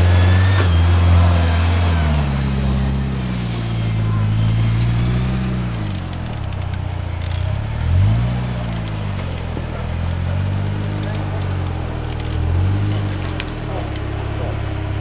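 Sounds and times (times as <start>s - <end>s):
vehicle engine revving: 0.0s - 15.0s
clicks: 3.8s - 15.0s.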